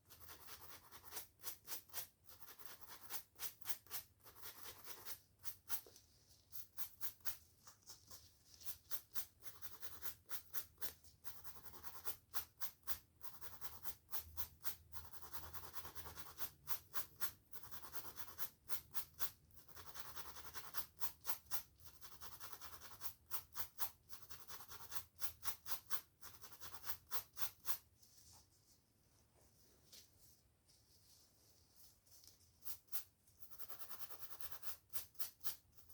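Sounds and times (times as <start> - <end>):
brushing and scratching hair: 0.4 - 11.4, 27.5 - 33.8.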